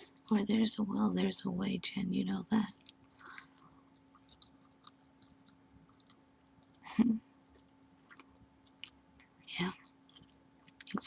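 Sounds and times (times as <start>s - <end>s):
gum chewing clicks and smacks: 2.7s - 6.8s, 7.5s - 11.0s.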